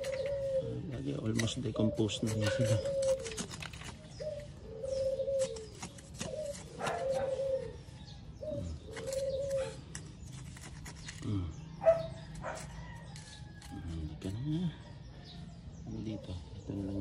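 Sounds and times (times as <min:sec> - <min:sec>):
trowel scraping soil: 0:00.0 - 0:08.0, 0:08.7 - 0:14.4
bird cooing: 0:00.0 - 0:10.1.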